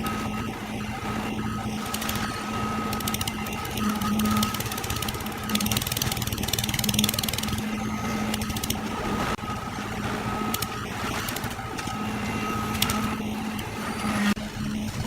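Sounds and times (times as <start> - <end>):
machine humming: 0.0 - 15.0
fast clicking rattle: 1.8 - 8.8.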